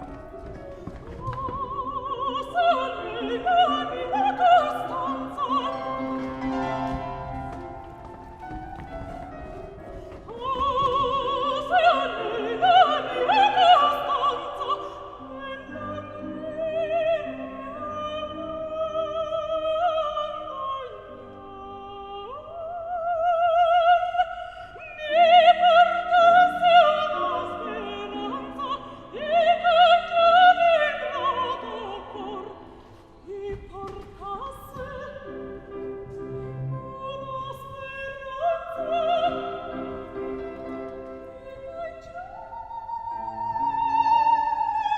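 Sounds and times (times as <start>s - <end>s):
operatic singing high voice: 1.2s - 7.8s.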